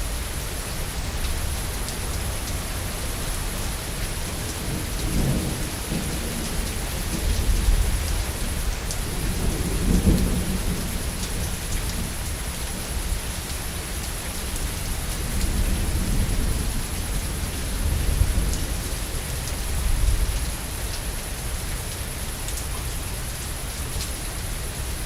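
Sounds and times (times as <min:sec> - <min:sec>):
heavy rain pattering: 0:00.0 - 0:25.0
low rolling thunder: 0:02.8 - 0:13.1, 0:14.5 - 0:20.6.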